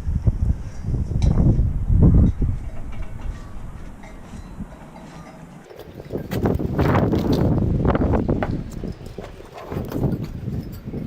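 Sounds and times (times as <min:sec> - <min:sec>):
wind buffeting microphone: 0:00.0 - 0:11.0
crunching knocks: 0:02.6 - 0:10.7.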